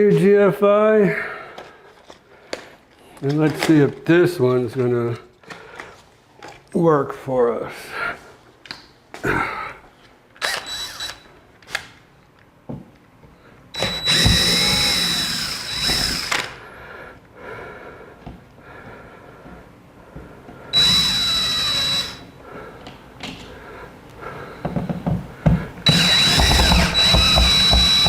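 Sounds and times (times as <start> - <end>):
cordless drill whirring: 10.4 - 11.3, 13.8 - 16.6, 20.8 - 22.3, 25.9 - 28.0.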